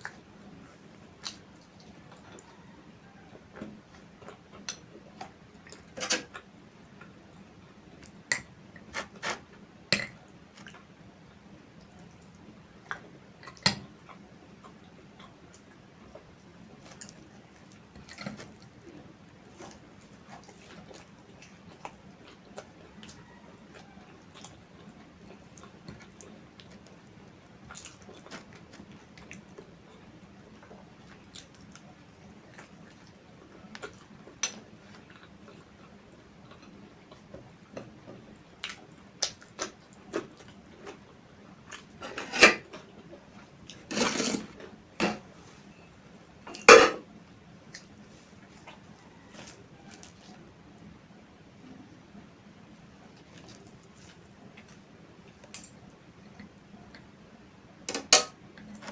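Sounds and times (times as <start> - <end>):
chewing: 0.0 - 7.2, 11.8 - 45.7, 47.7 - 50.5, 52.9 - 55.5.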